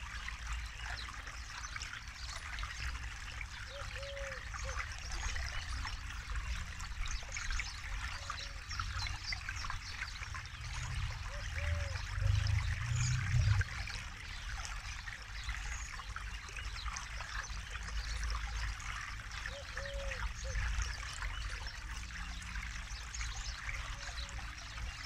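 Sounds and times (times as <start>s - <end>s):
water trickling over rocks: 0.0s - 25.0s
low river rush: 6.2s - 15.5s.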